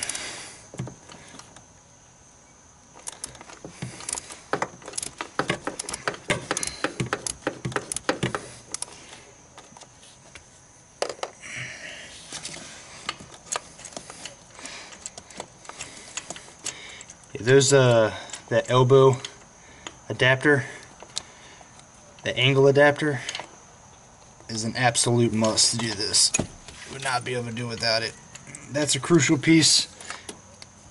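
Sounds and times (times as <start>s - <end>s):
metal tools clinking: 3.0s - 8.8s
socket ratchet clicking: 4.0s - 8.9s.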